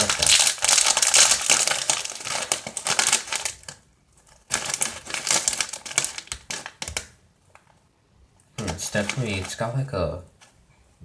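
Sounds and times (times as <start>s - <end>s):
plastic pouch crinkling and tearing: 0.0s - 7.1s, 8.6s - 9.6s.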